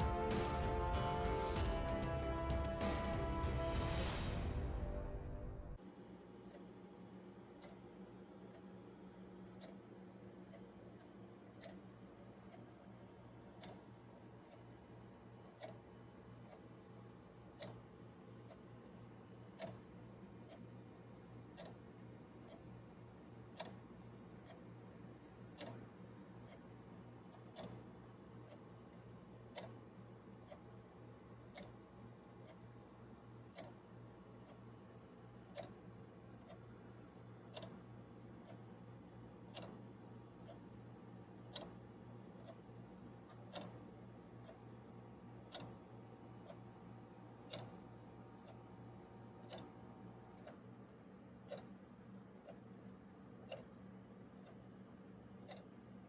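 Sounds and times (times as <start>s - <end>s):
low steady hum: 0.0s - 56.0s
clock ticking: 7.6s - 7.8s, 9.5s - 16.7s, 17.4s - 18.8s, 19.5s - 20.7s, 21.3s - 56.0s.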